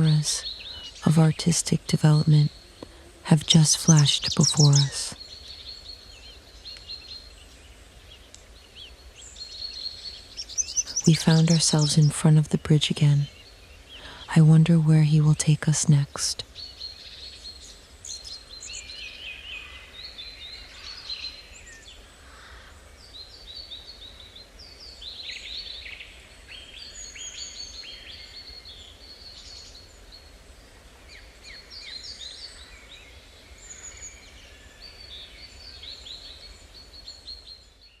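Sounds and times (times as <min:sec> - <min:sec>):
songbirds chirping and trilling: 0:00.0 - 0:38.0.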